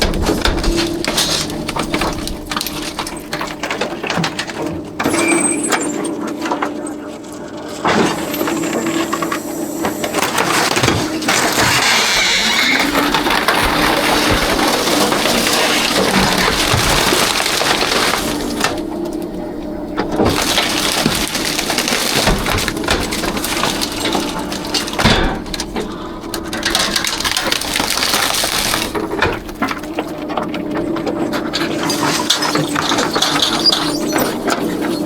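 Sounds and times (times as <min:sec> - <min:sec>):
hydraulic compactor hum: 0:00.0 - 0:35.0
trash crunching and crackling: 0:00.0 - 0:35.0.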